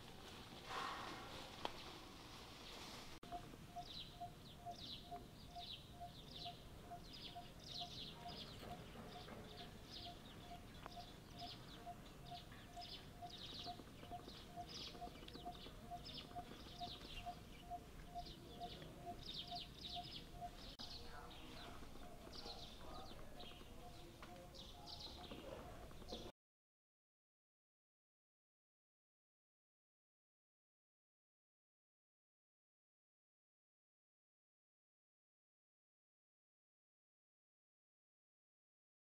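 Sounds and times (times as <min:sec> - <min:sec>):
birds chirping: 0:01.7 - 0:26.3.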